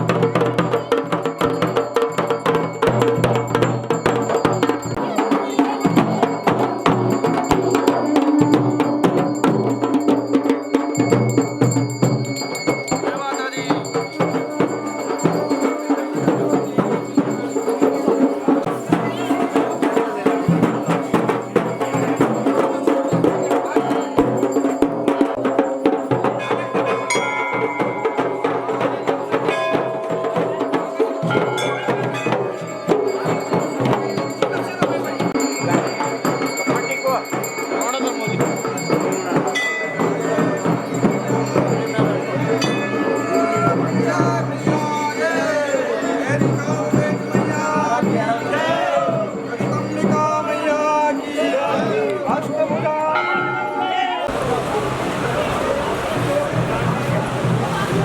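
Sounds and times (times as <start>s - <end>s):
drums playing steady rhythm: 0.0s - 58.0s
background voices: 54.2s - 58.0s.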